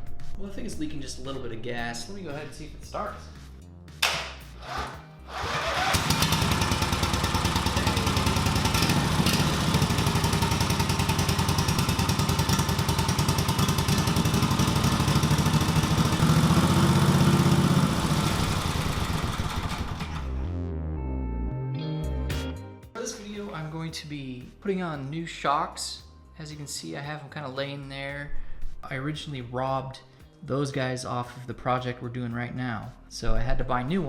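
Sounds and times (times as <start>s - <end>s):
small engine cranking and running: 4.6s - 20.3s.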